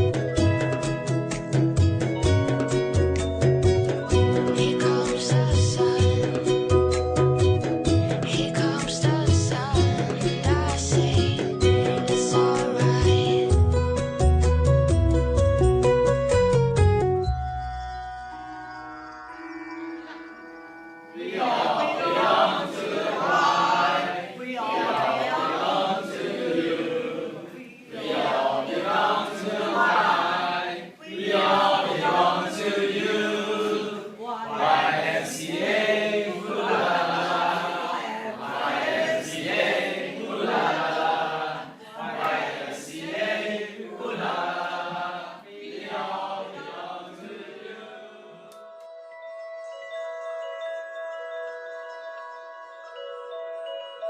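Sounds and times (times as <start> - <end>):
group of voices singing: 4.4 - 6.5, 8.2 - 13.6, 21.2 - 48.6
chime-like ringing tones: 17.5 - 22.4, 48.6 - 54.0.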